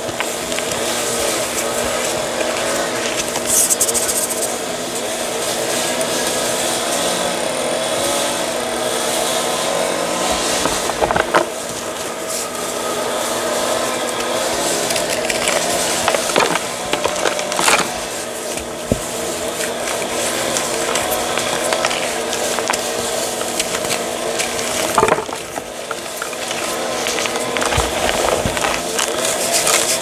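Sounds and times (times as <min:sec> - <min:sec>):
chalk crushing and crumbling: 0:00.0 - 0:07.1, 0:08.8 - 0:30.0
steady background noise: 0:00.0 - 0:30.0
sharp gritty crunches: 0:09.0 - 0:30.0.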